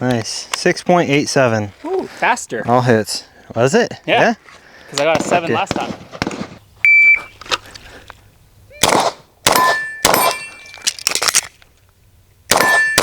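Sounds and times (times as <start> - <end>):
gunshots: 5.1 - 6.6, 8.8 - 10.6, 12.5 - 13.0
electronic beep: 6.9 - 7.4
steel targets ringing: 9.5 - 10.8, 12.5 - 13.0.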